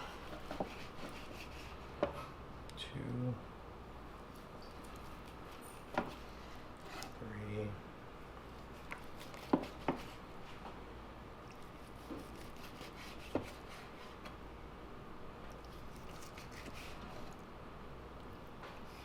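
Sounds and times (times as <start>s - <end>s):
knife cutting ribs: 0.0s - 2.3s, 8.8s - 10.2s, 11.6s - 14.2s, 15.7s - 17.4s.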